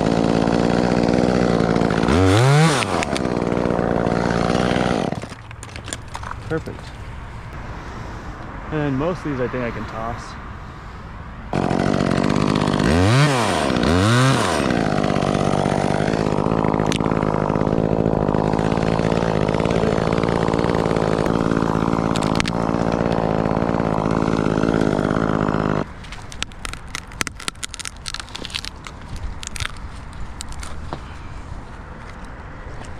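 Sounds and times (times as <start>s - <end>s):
chainsaw revving and idling: 0.0s - 6.9s, 11.5s - 29.8s.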